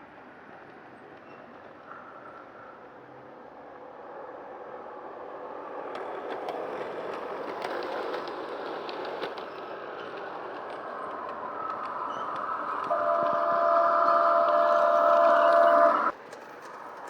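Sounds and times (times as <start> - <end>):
model train running on track: 0.0 - 17.0
wheels clicking over rail joints: 5.7 - 17.0.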